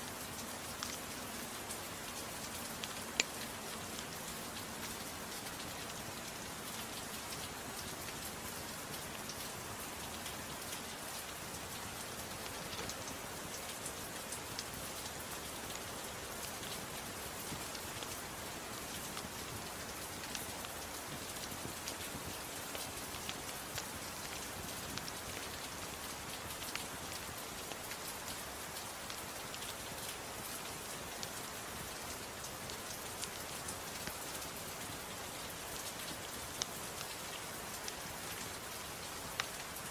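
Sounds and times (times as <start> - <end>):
gentle rain falling: 0.0 - 39.9
fireplace fire crackling: 0.1 - 39.9.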